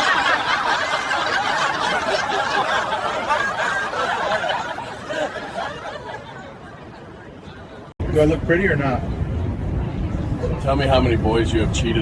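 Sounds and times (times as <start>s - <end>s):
laughter: 0.0s - 7.9s.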